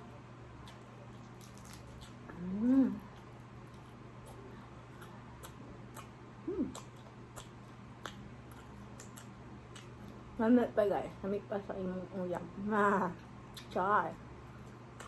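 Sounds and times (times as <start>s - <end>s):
low room hum: 0.0s - 15.0s
voiced hum: 0.0s - 15.0s
mouth clicks and smacks from chewing: 5.0s - 10.2s.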